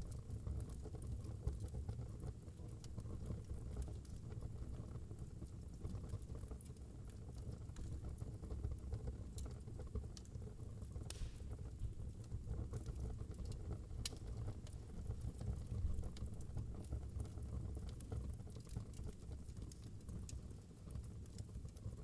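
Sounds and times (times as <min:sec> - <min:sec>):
fire crackles and pops: 0:00.0 - 0:22.0
fire low rumble: 0:00.0 - 0:22.0
brief hiss: 0:11.1 - 0:11.6.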